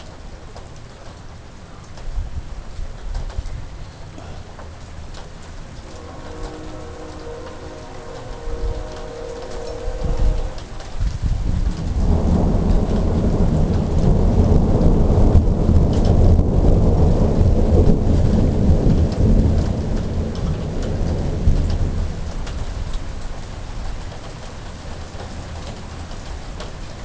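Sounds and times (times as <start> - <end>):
steady rain pattering: 0.0 - 27.0
rumble of thunder: 5.8 - 27.0.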